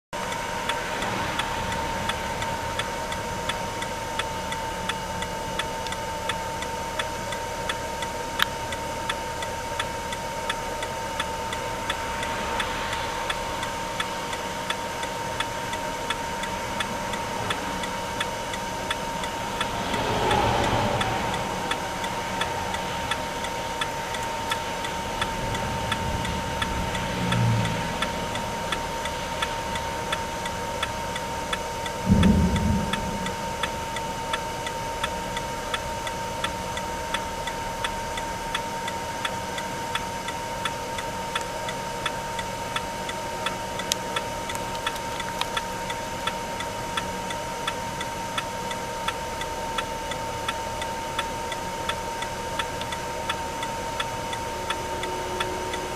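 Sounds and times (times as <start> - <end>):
regular ticking: 0.2 - 55.9
high-pitched tone: 11.0 - 35.0, 53.0 - 55.9
short low thump: 32.0 - 34.2.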